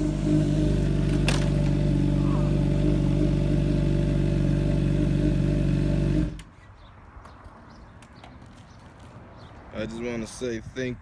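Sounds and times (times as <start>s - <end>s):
motorcycle engine idling: 0.0s - 6.4s.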